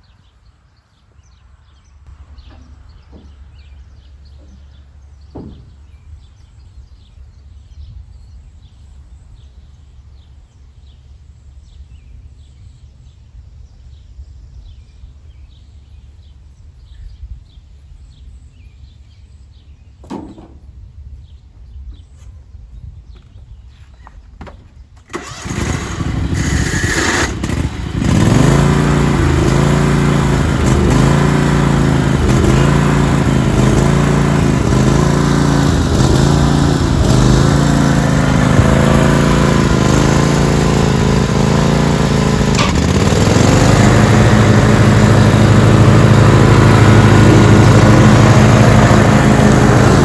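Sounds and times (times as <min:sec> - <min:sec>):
garden tractor engine running: 0:24.4 - 0:50.0.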